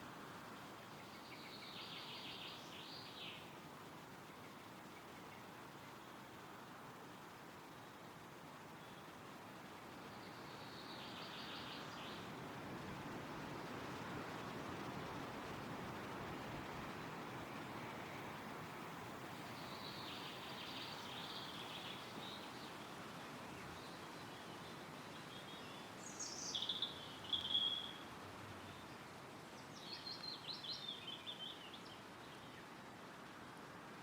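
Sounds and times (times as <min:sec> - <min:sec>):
wind rustling through trees: 0:00.0 - 0:34.0
songbirds singing: 0:00.6 - 0:03.6, 0:09.9 - 0:12.4, 0:19.0 - 0:32.8.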